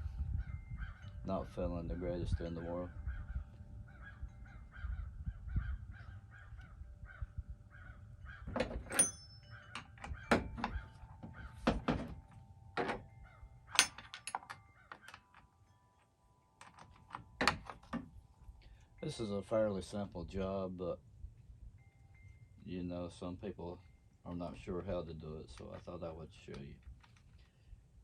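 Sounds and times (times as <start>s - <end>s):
metallic clink: 8.6s - 11.2s, 12.2s - 19.1s.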